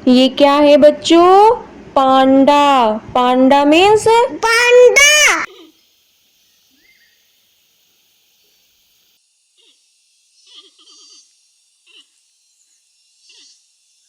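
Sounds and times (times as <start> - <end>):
faint hiss: 1.0 - 9.7.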